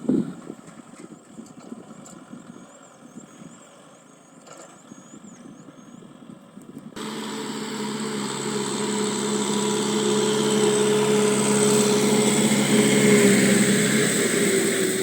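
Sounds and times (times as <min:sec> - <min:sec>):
tractor engine running: 0:07.0 - 0:15.0.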